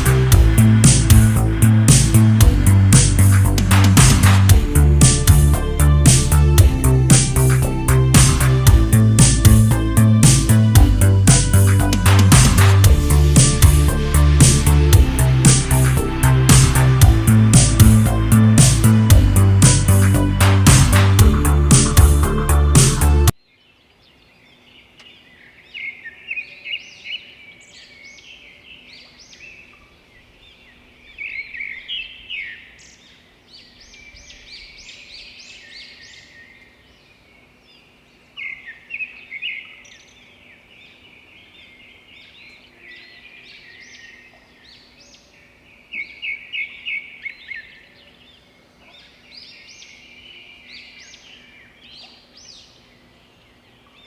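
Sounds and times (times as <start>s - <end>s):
birds chirping: 0.0s - 54.0s
quiet bird twittering: 23.4s - 54.0s.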